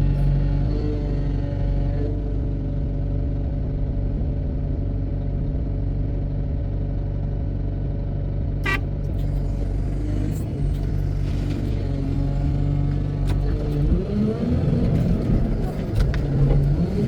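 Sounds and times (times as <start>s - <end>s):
heavy diesel engine running: 0.0s - 17.0s
short high-pitched toot: 8.6s - 9.3s.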